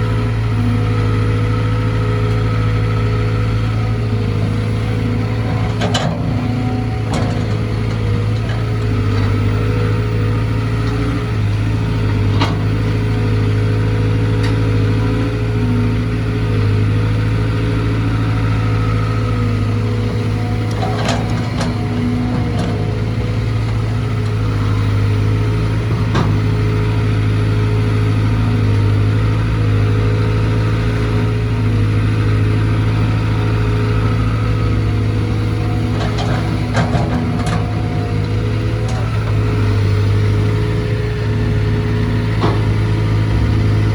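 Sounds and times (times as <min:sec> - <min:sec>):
diesel excavator engine running: 0:00.0 - 0:43.9.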